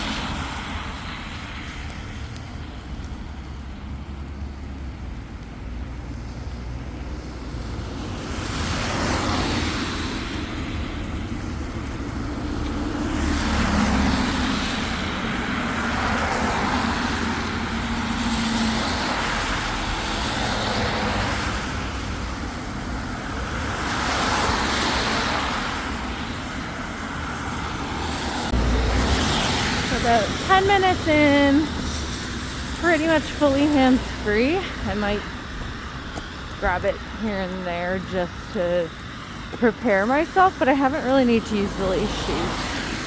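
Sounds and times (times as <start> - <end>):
cars passing: 0.0 - 43.0
low engine hum: 25.1 - 43.0.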